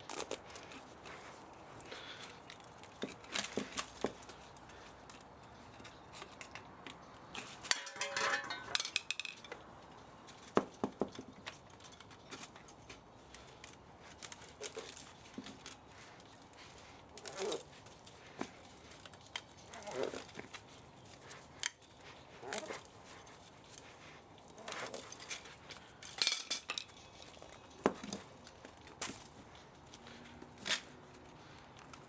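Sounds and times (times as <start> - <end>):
hand tools clinking on metal parts: 2.2 - 32.0
metal parts rattling: 7.3 - 9.6, 24.6 - 28.3.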